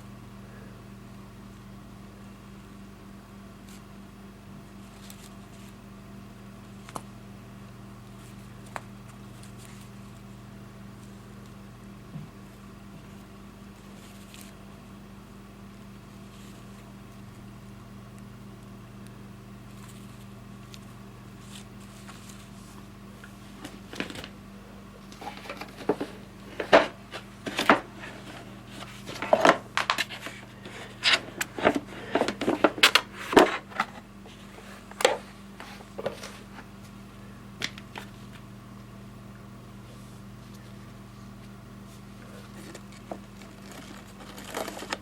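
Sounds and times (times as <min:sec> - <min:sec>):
steady low hum: 0:00.0 - 0:45.0
objects being handled: 0:25.0 - 0:37.0, 0:42.2 - 0:45.0.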